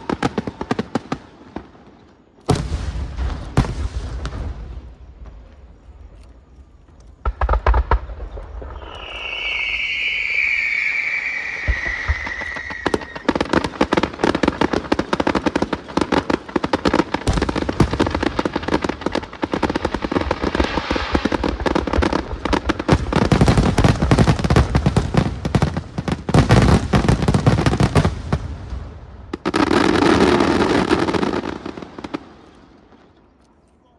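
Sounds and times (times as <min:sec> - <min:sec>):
fireworks bangs: 0:00.0 - 0:33.3
rapid crackling bangs: 0:07.1 - 0:09.2
falling firework whistle: 0:07.3 - 0:14.0, 0:20.2 - 0:22.1.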